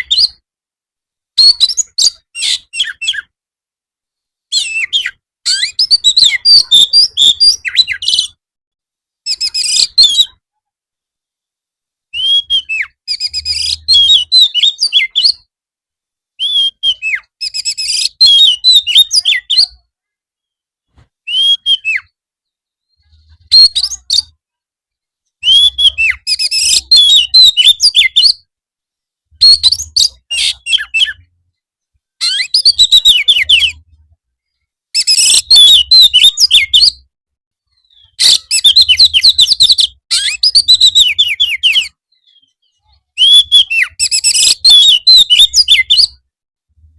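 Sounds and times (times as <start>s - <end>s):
bird singing whistles and chatter: 1.4s - 3.3s, 4.5s - 8.4s, 9.3s - 10.4s, 12.1s - 15.5s, 16.4s - 19.8s, 21.2s - 22.2s, 22.8s - 24.3s, 25.4s - 28.5s, 29.4s - 31.3s, 32.2s - 34.0s, 35.0s - 37.0s, 37.8s - 46.2s.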